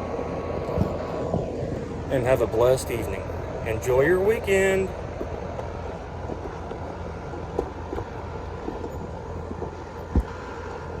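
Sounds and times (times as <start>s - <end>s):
air conditioner unit humming: 0.0s - 11.0s
thump: 10.1s - 10.4s.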